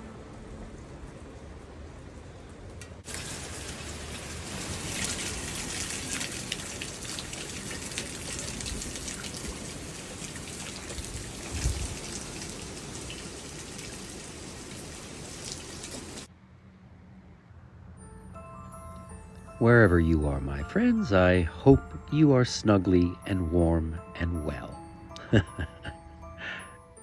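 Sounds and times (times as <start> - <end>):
steady rain with close drops: 0.0 - 16.3.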